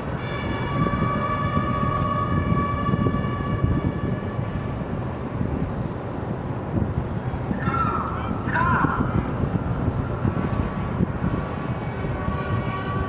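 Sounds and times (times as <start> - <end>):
long signal note: 0.2 - 5.0.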